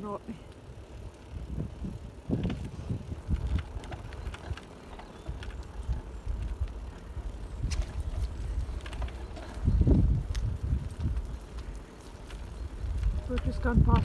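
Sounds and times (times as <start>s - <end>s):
bicycle clicks and rattles: 0.0s - 14.0s
wind rumbling on microphone: 0.6s - 14.0s.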